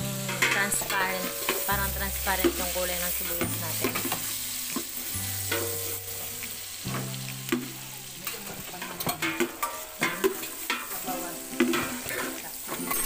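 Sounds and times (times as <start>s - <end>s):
garlic and onion sizzling in oil: 0.0s - 13.0s.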